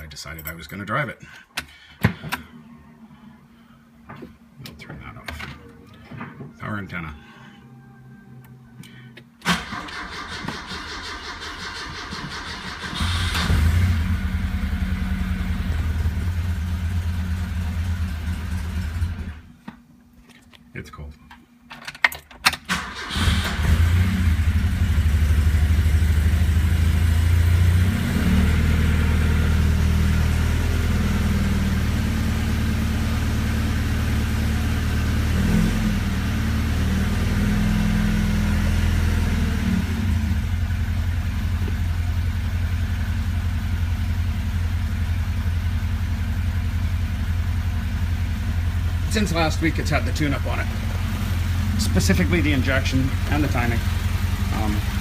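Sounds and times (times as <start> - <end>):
engine cranking: 9.4 - 13.6
car engine idling: 9.7 - 19.4, 40.1 - 55.0.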